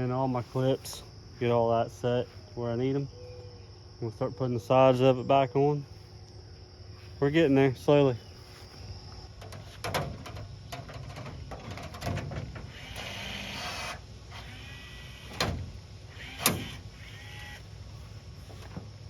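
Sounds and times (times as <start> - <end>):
small power tool running: 12.6 - 15.5, 16.1 - 17.7.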